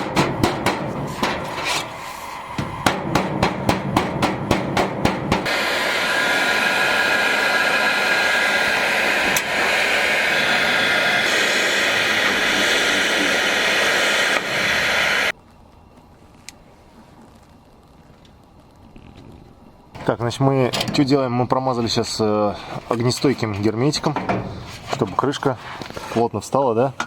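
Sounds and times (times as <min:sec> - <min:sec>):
hammer knocks: 0:00.0 - 0:01.6, 0:02.6 - 0:05.5
loud steady hiss: 0:00.0 - 0:15.3.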